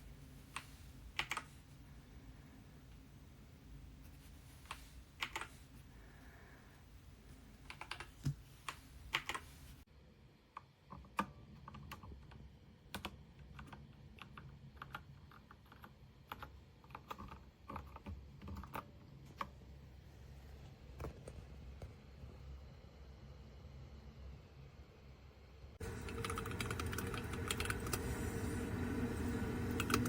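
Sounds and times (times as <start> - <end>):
mechanical keyboard typing: 0.5 - 1.5, 4.7 - 5.6, 7.6 - 9.5, 10.9 - 19.6, 25.8 - 28.2, 29.2 - 30.0.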